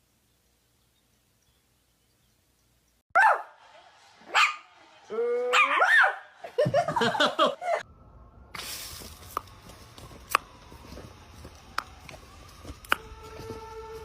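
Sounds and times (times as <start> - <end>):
dog yipping and barking: 3.2 - 3.6, 5.5 - 6.3.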